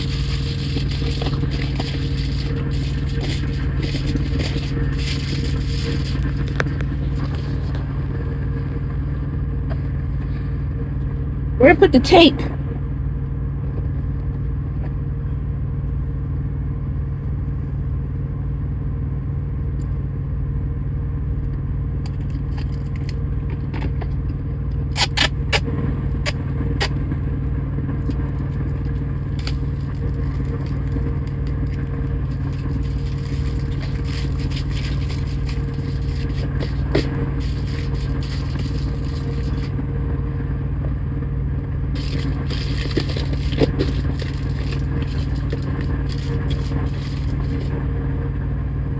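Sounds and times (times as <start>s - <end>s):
aluminum foil scraping and crackling: 0.0s - 8.8s, 28.0s - 39.8s, 42.0s - 47.8s
diesel engine humming: 0.0s - 13.5s, 21.7s - 48.9s.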